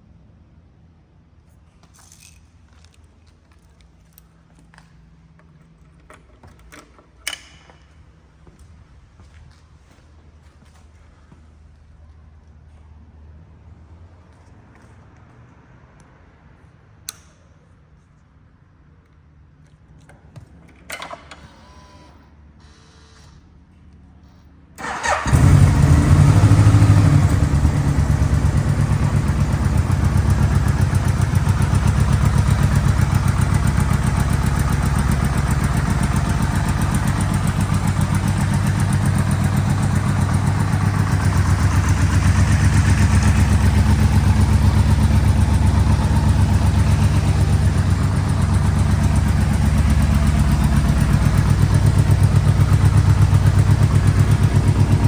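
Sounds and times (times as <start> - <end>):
motorcycle engine starting and idling: 24.8 - 55.0.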